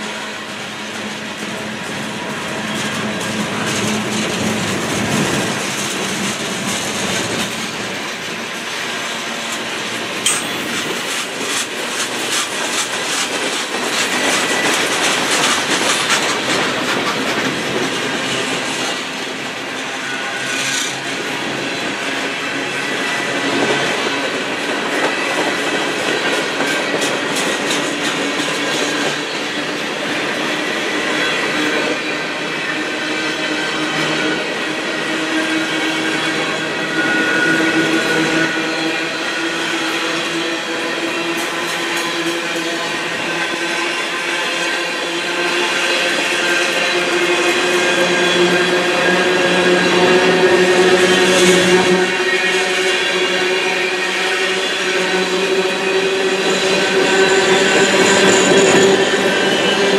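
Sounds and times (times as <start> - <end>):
freight train rolling past: 0.0 - 59.9
wheels clacking over rail joints: 9.4 - 19.1.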